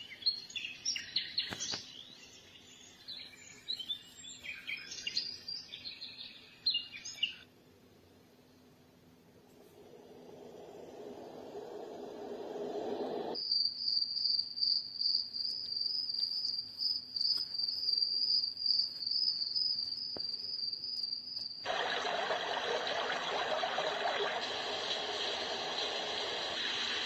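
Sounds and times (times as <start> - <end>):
low rushing noise: 9.5 - 13.4
pulsing high cricket chirring: 13.3 - 21.7.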